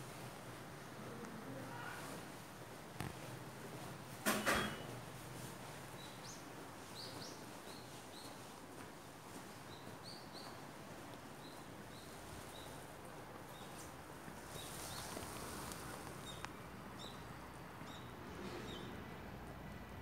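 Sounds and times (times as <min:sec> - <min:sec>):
background hiss: 0:00.0 - 0:20.0
small bird chirping: 0:14.5 - 0:19.0.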